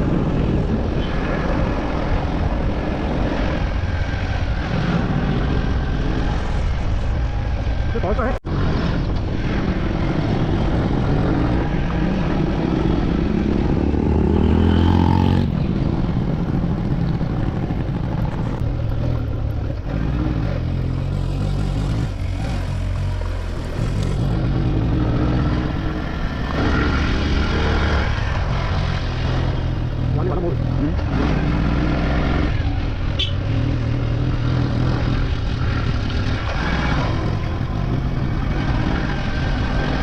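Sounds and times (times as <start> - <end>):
motorcycle engine revving: 8.5 - 40.0.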